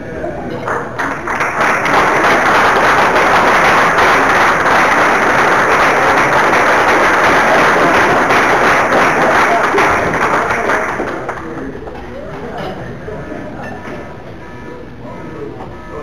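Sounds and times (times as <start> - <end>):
audience applauding: 0.6 - 11.7.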